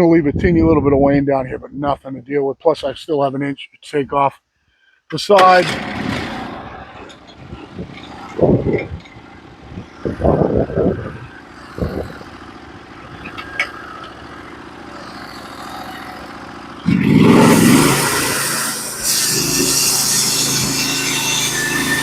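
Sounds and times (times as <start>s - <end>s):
sawmill engine running: 5.3s - 22.0s
band saw blade cutting wood: 11.4s - 22.0s.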